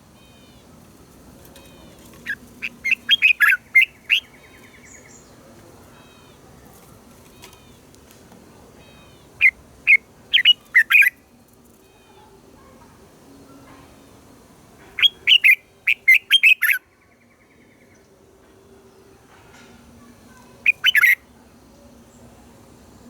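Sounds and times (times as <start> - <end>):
faint bird chirps: 0.1 - 0.8, 1.4 - 7.8, 8.8 - 11.2, 11.8 - 18.2, 18.9 - 22.5
bird singing clear notes: 1.5 - 6.4, 8.8 - 11.2, 14.9 - 18.1, 20.3 - 21.2.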